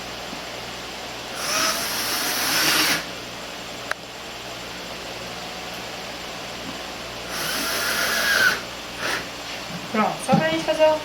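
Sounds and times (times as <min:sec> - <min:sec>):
electric drill driving screw: 0:01.4 - 0:03.1, 0:07.2 - 0:09.3.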